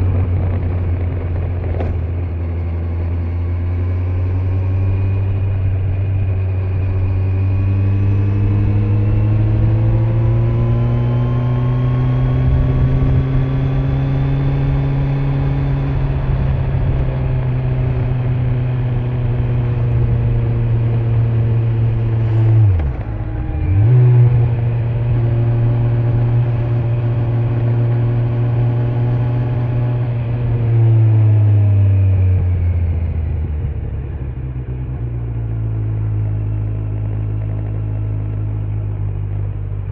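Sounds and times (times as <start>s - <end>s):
wind noise: 0.0s - 2.7s, 7.1s - 26.9s
motorcycle engine running: 0.0s - 39.9s
tyre noise on road: 0.0s - 39.9s.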